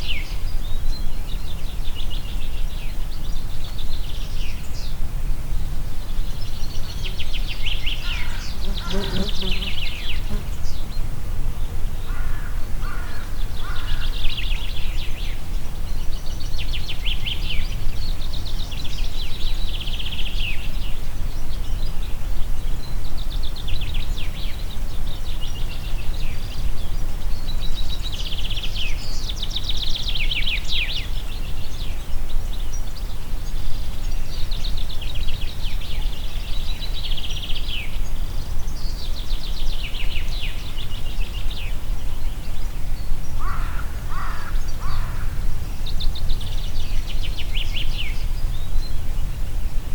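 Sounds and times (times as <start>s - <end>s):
birds singing trilled phrases: 7.9s - 11.0s.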